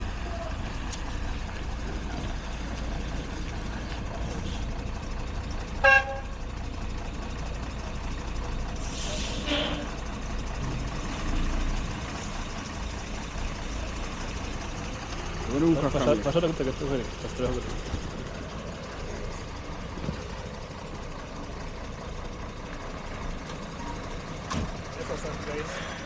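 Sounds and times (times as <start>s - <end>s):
truck engine running: 0.0s - 26.0s
truck horn toot: 5.8s - 6.4s, 9.2s - 10.0s.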